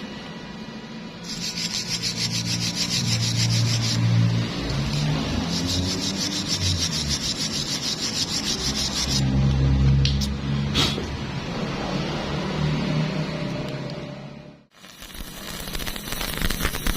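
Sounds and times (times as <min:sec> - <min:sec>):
file rasping on metal: 0:01.3 - 0:04.2, 0:04.9 - 0:09.2.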